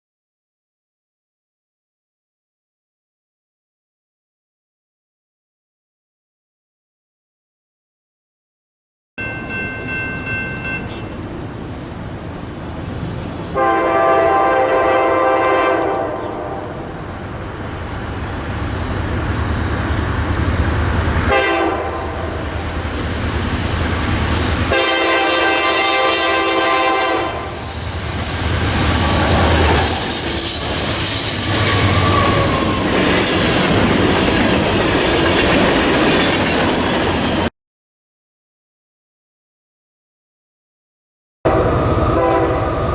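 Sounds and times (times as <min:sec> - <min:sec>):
locomotive horn blasts: 0:09.2 - 0:11.2, 0:13.5 - 0:17.0, 0:21.2 - 0:22.6, 0:24.6 - 0:29.8, 0:41.5 - 0:42.9
passing train rumble and clatter: 0:09.2 - 0:37.5, 0:41.5 - 0:42.9.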